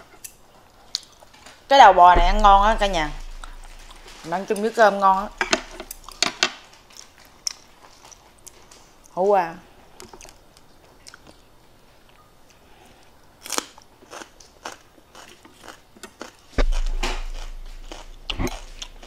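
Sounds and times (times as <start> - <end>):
low rumble: 1.8 - 6.2, 16.6 - 19.0
dull thump: 1.9 - 4.3, 5.1 - 6.2, 16.6 - 19.0
crunching vegetable bites: 13.4 - 19.0.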